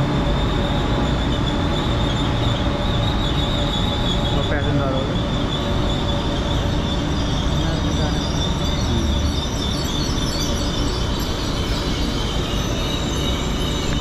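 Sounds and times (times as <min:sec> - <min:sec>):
high-pitched whine: 0:00.0 - 0:14.0
train rumble and hum: 0:00.0 - 0:14.0.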